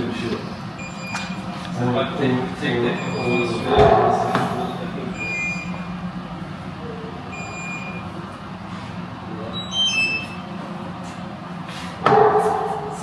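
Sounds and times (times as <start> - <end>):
steady low hum: 0.0 - 13.0
car warning chime beeps: 0.8 - 1.5, 2.7 - 5.9, 7.3 - 8.1, 9.5 - 10.4.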